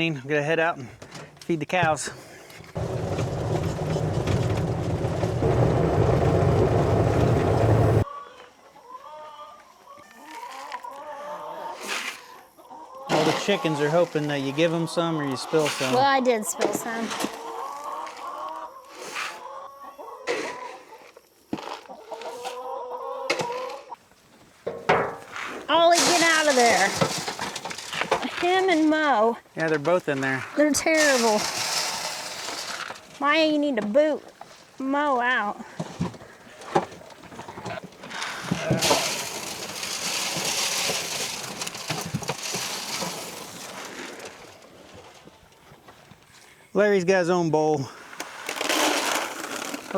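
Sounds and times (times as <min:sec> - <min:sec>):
chickens clucking: 0:02.8 - 0:21.2, 0:21.8 - 0:24.0
dry feed pouring into feeder: 0:31.0 - 0:33.0, 0:38.2 - 0:44.4.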